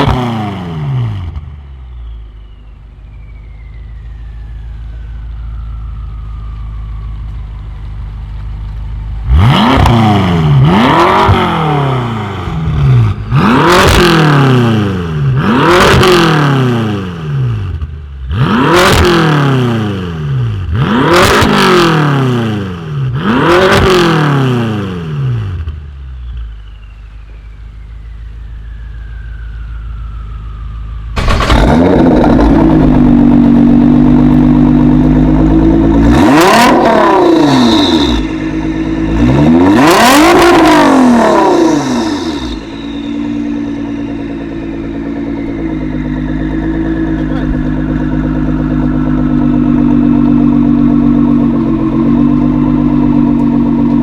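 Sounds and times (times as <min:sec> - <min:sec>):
car engine revving: 0:00.0 - 0:01.5, 0:09.1 - 0:25.7, 0:31.2 - 0:54.0.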